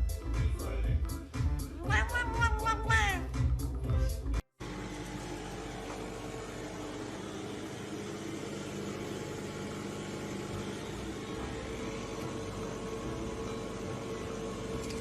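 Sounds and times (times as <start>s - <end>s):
machine hum with hiss: 4.6s - 15.0s.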